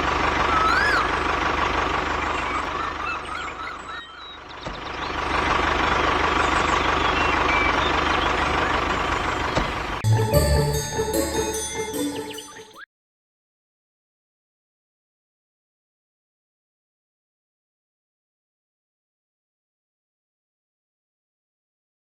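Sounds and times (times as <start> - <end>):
vehicle engine with high whine: 0.0 - 10.0.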